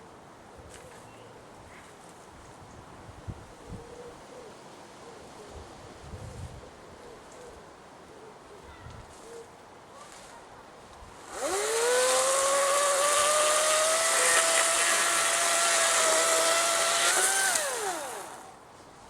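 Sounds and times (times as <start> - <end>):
electric chainsaw whining: 11.2 - 18.6.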